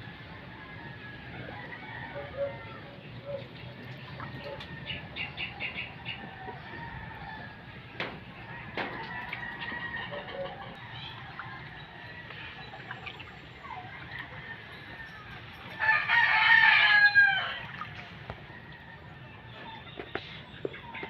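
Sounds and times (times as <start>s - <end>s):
rooster crowing: 0.8s - 2.9s, 14.4s - 17.8s.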